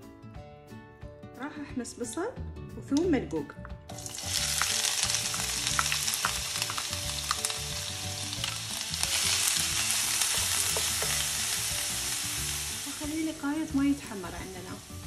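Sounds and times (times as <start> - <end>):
onions sizzling in a pan: 3.9 - 15.0.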